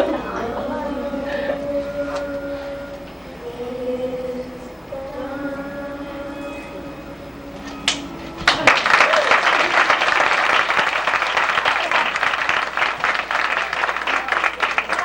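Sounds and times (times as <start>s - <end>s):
children's song held sung note: 0.0s - 8.3s
audience applause: 8.4s - 15.0s.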